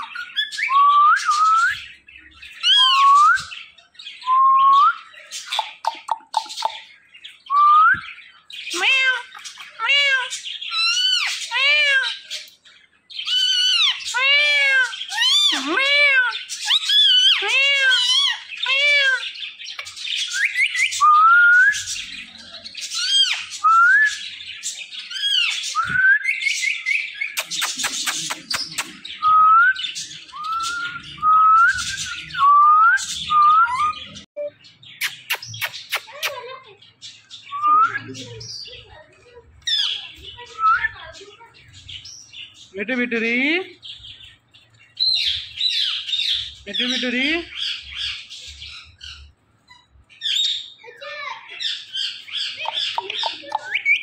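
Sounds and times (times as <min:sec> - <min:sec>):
parrot whistling and squawking: 0:00.0 - 0:01.9, 0:02.5 - 0:03.5, 0:08.7 - 0:12.3, 0:13.2 - 0:19.3, 0:20.2 - 0:22.0, 0:22.9 - 0:24.2, 0:51.6 - 0:54.0.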